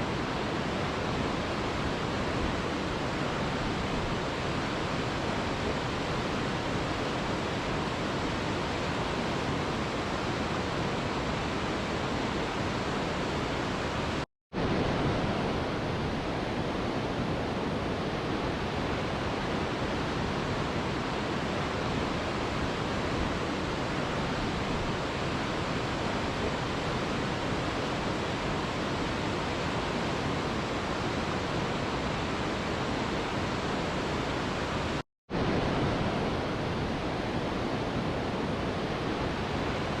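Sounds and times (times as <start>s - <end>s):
mountain river rushing: 0.0s - 40.0s.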